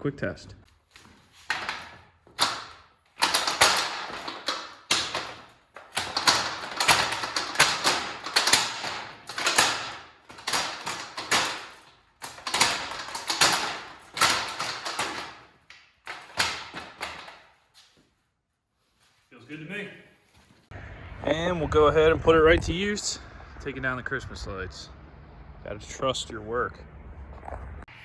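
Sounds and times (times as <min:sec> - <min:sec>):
metal ladder clanking and rattling: 0:01.0 - 0:17.6.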